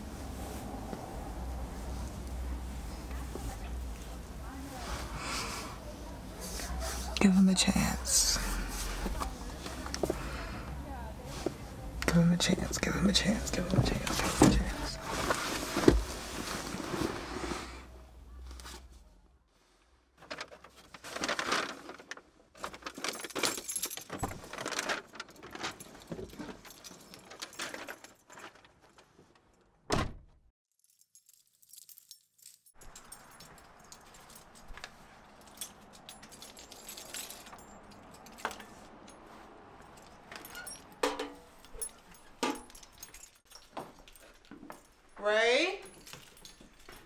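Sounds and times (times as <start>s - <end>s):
rustling and handling clicks: 20.2s - 29.6s
keys jangling: 22.9s - 24.6s, 25.3s - 28.6s, 30.8s - 45.2s, 45.8s - 47.0s.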